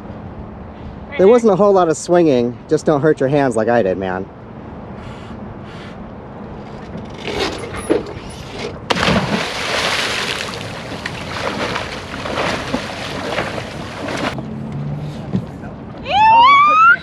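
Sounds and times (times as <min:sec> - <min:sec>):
water churning and splashing: 0:07.4 - 0:14.4
loud water splash: 0:08.9 - 0:14.4.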